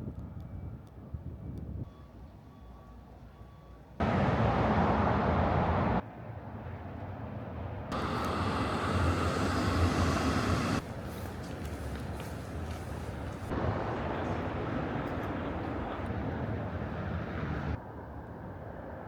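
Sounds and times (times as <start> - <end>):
traffic rushing: 4.0 - 6.0, 7.9 - 17.8.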